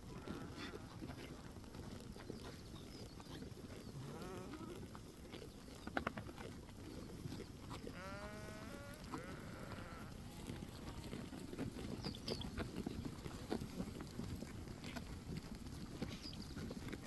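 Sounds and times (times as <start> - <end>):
sheep bleating: 0.1 - 0.9, 7.9 - 11.2.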